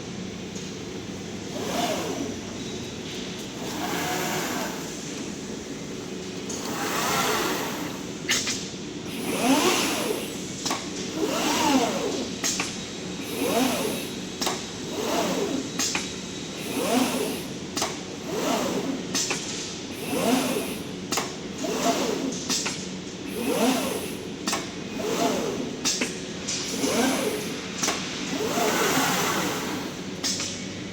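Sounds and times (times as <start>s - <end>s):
machine motors whining up and down: 1.4s - 5.6s, 6.4s - 8.2s, 9.1s - 10.4s, 11.1s - 12.5s, 13.2s - 15.8s, 16.6s - 19.2s, 19.9s - 20.9s, 21.5s - 22.5s, 23.3s - 24.3s, 24.9s - 25.9s, 26.6s - 30.2s.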